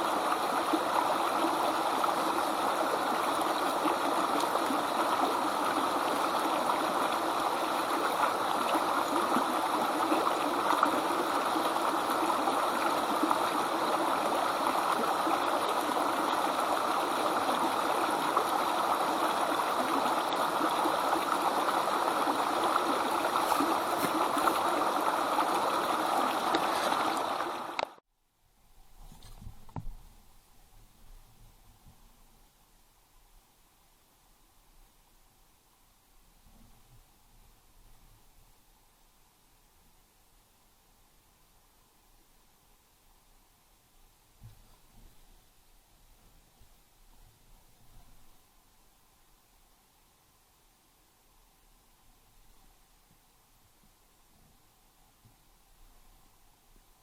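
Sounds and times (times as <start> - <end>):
running water: 0.0 - 28.0.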